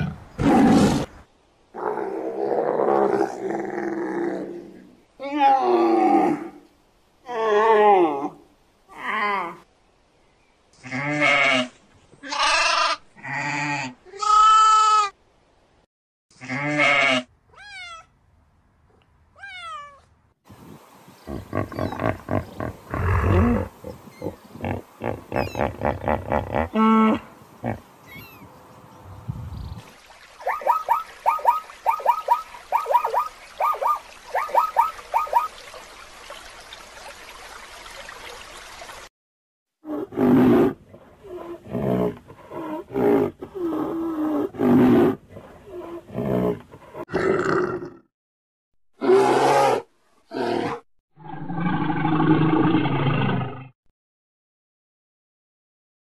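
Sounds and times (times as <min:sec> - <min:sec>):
bleating mewing animal cries: 0:10.9 - 0:15.2, 0:25.3 - 0:26.0, 0:26.6 - 0:28.5.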